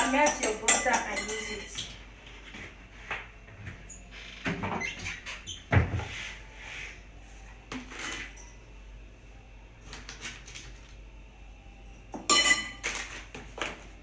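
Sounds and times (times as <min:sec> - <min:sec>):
kitchen utensils knocking and rustling: 0:00.0 - 0:02.0.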